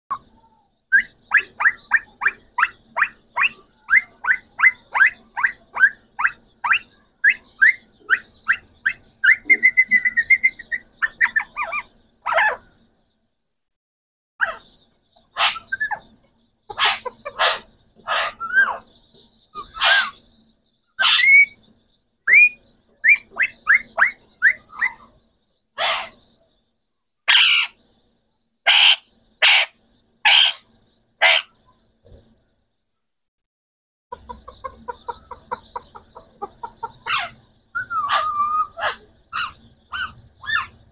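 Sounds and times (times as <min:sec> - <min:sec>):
parrots calling and screeching: 0:01.0 - 0:12.7, 0:14.4 - 0:18.9, 0:19.6 - 0:20.2, 0:21.0 - 0:21.6, 0:22.3 - 0:25.2, 0:25.8 - 0:26.2, 0:27.3 - 0:27.8, 0:28.6 - 0:31.6, 0:34.1 - 0:40.9.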